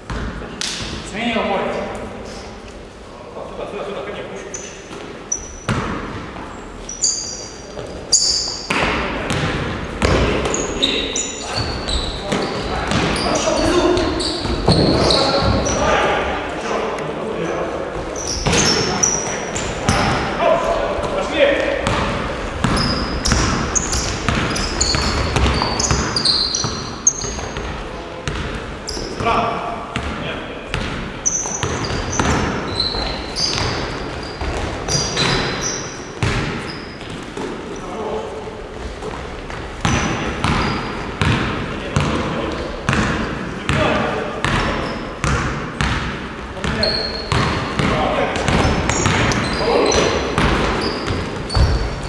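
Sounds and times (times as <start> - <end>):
basketball bouncing: 0.1 - 0.8, 5.7 - 6.2, 8.7 - 10.6, 11.8 - 15.7, 21.8 - 28.6, 30.0 - 35.5, 36.2 - 36.7, 39.1 - 52.0
sneakers squeaking on court: 4.5 - 15.9, 17.9 - 20.4, 21.0 - 29.3, 29.9 - 37.9, 38.8 - 52.0
basketball bouncing on hardwood: 21.8 - 26.8, 39.8 - 42.1, 44.4 - 49.4, 50.4 - 52.0.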